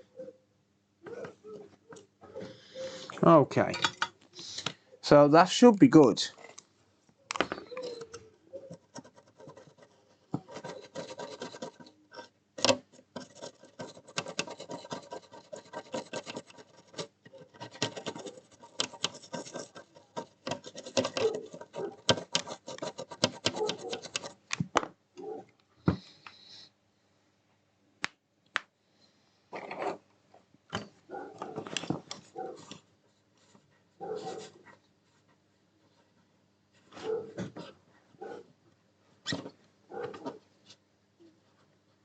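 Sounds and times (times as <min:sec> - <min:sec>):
scratching and rubbing on circuit board: 0:07.8 - 0:24.4.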